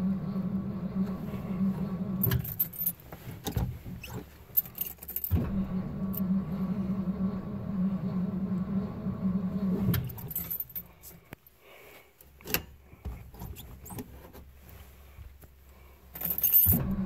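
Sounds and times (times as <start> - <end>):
car engine cranking: 0.0 - 10.8, 16.4 - 17.0.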